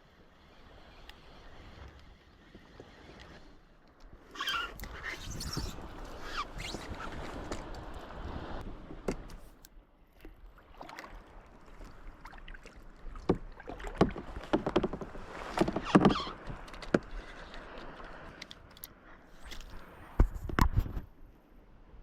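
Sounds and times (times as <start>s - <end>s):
paddle splashing: 4.2s - 18.4s.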